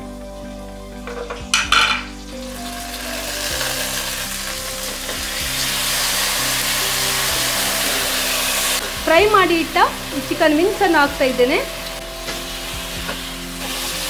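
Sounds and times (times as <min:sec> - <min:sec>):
spices sizzling in hot oil: 0:00.0 - 0:14.0
spoon clinking against pan: 0:01.5 - 0:02.1.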